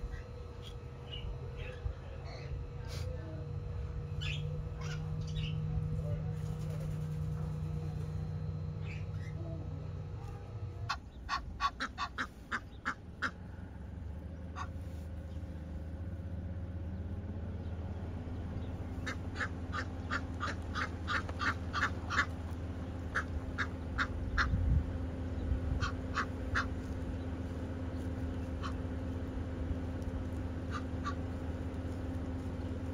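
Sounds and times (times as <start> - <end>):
steady low hum: 0.0 - 32.9
bird quacking calls: 10.8 - 13.4, 14.5 - 14.8, 19.0 - 24.6, 25.8 - 26.9, 28.5 - 28.9, 30.6 - 31.4.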